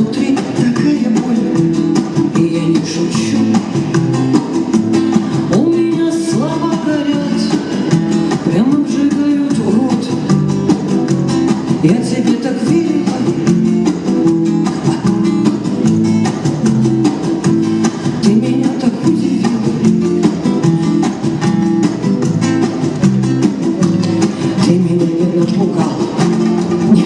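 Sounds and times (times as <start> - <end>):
acoustic guitar strummed fast: 0.0 - 27.0.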